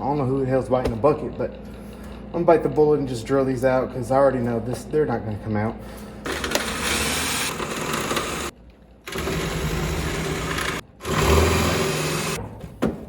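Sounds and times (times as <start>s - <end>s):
power drill drilling bolts: 6.3s - 8.5s, 9.1s - 12.4s.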